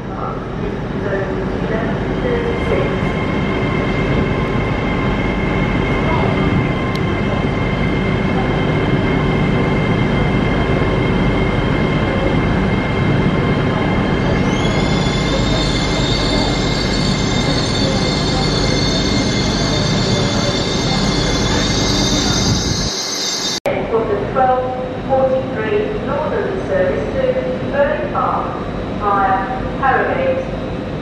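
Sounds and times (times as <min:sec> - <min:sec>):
electric train rumbling: 0:00.0 - 0:31.0
high steady squeal: 0:02.2 - 0:23.7
wheels on rail: 0:02.6 - 0:23.6.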